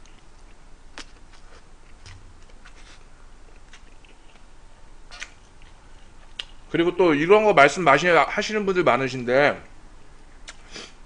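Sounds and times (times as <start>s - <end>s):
man chewing quietly: 0.0s - 6.7s.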